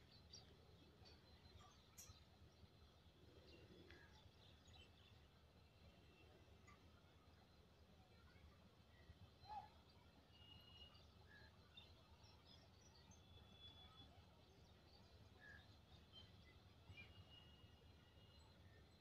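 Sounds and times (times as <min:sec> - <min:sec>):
faint bird chirps and whistles: 0:08.9 - 0:18.8.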